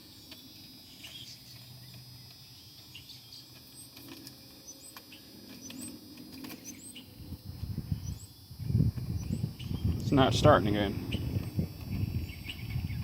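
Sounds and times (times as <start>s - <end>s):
faint bird chirps: 6.6s - 7.1s.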